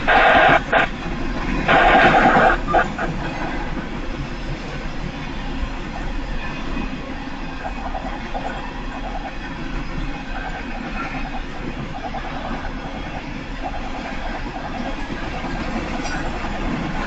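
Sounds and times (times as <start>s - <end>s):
train cars rolling past: 0.0s - 17.0s
wheel clatter on rails: 0.0s - 17.0s.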